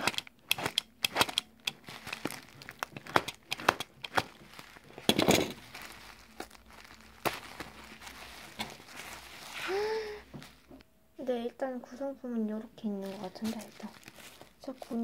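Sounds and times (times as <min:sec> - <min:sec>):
scattered clicks: 0:00.0 - 0:01.8, 0:03.0 - 0:04.3
wrapping crinkling and tearing: 0:00.0 - 0:10.8, 0:12.9 - 0:15.0.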